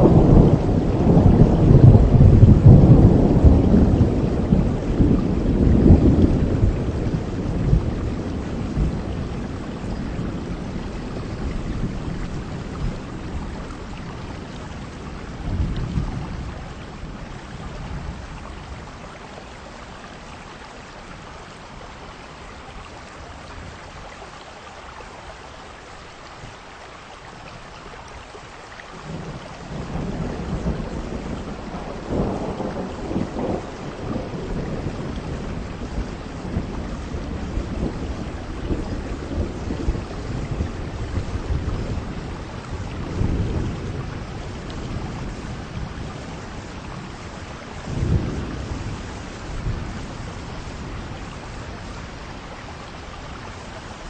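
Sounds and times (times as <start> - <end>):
thunder rolling: 0.0 - 19.0, 29.0 - 52.2
heavy rain falling: 0.0 - 54.0.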